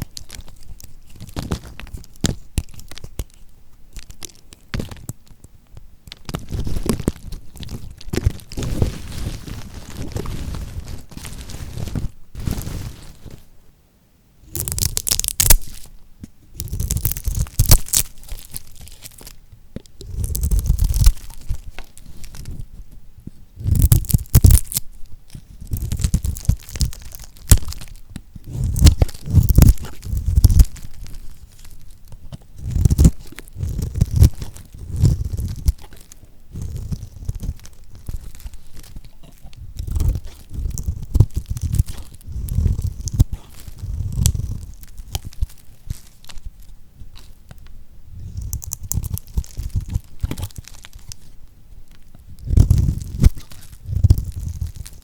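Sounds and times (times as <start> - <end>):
knife cutting through hard soap: 32.4 - 45.5.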